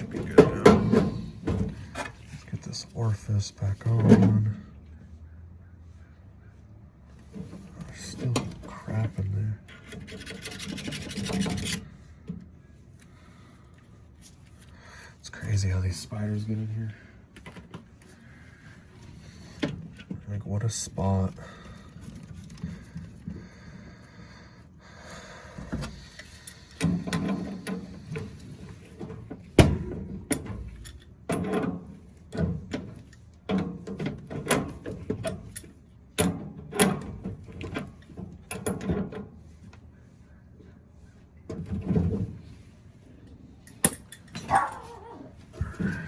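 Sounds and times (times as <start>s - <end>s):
metal parts and tools clattering: 0.0s - 2.5s, 9.7s - 11.9s, 26.2s - 39.4s, 43.6s - 46.0s.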